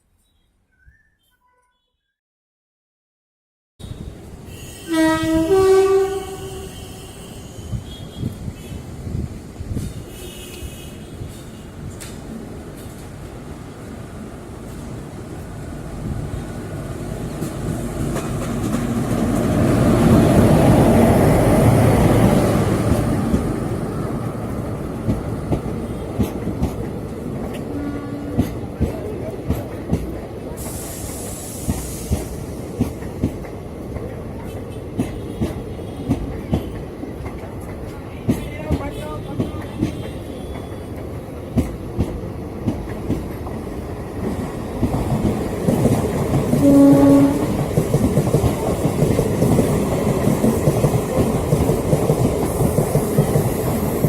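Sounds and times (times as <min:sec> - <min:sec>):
train horn: 0:03.8 - 0:08.8, 0:10.1 - 0:11.7, 0:27.6 - 0:28.5, 0:46.5 - 0:47.7
train rumbling past: 0:03.8 - 0:54.0.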